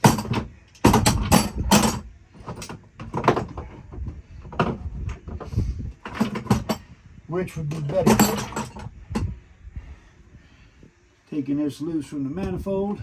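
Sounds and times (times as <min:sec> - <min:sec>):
metal tools clanking: 0:06.0 - 0:06.9, 0:07.6 - 0:09.3.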